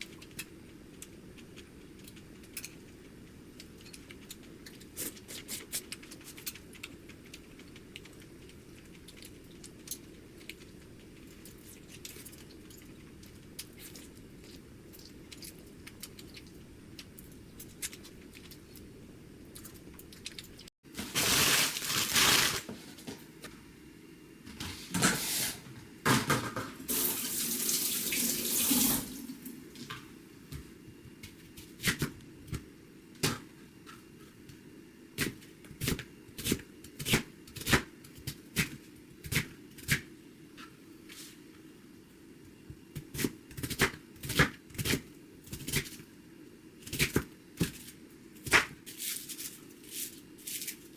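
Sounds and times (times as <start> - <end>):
tap water running into sink: 26.9 - 29.2.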